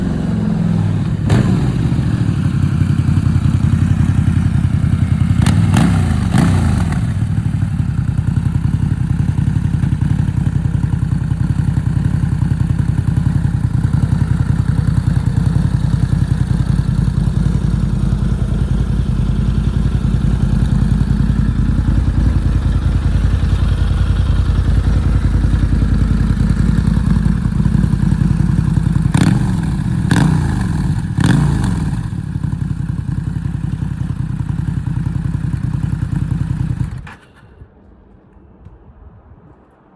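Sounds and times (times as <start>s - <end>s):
motorcycle engine idling and revving: 0.0s - 37.4s.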